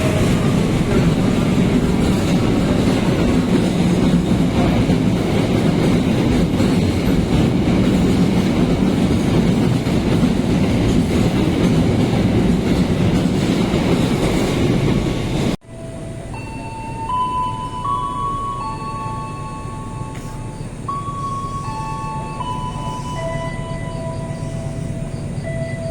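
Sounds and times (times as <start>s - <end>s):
train wheels running over track: 0.0s - 15.6s.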